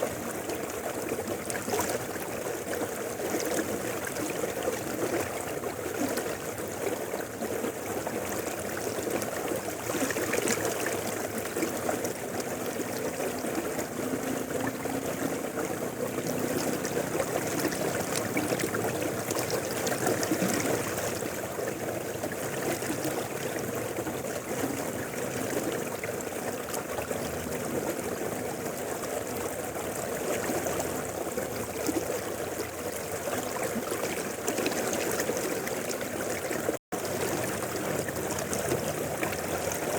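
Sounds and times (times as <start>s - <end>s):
river rushing over rocks: 7.4s - 32.8s.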